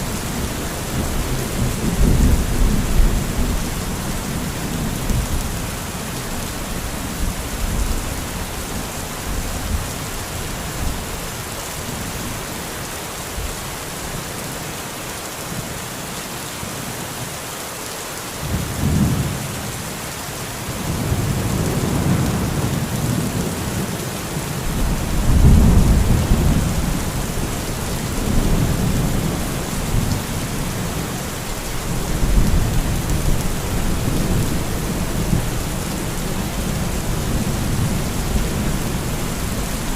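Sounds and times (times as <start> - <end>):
heavy rain: 0.0 - 39.9
rolling thunder: 24.7 - 30.9.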